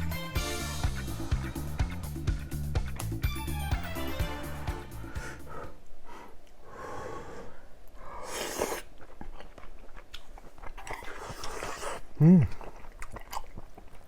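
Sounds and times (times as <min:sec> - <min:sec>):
vegetable wrap being chewed: 0:08.3 - 0:14.0.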